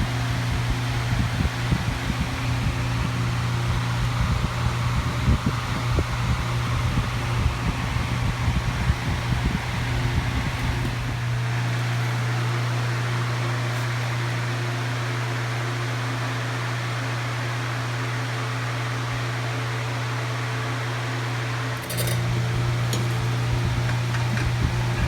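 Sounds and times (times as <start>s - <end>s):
electric fan humming: 0.0s - 25.0s
fan click: 9.0s - 12.2s, 21.6s - 25.0s.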